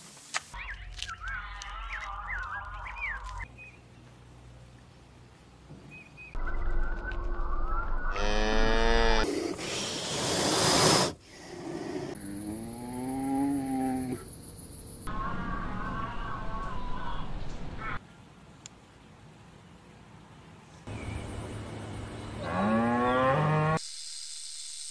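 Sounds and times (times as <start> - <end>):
cow mooing: 8.2 - 9.2
loud breathy hiss: 9.3 - 12.2.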